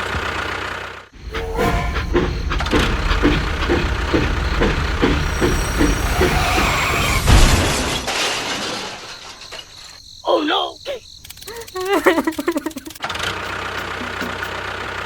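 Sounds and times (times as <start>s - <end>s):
small machine motor rumbling: 0.0s - 8.1s, 12.9s - 15.0s
heavy thud: 1.2s - 8.5s.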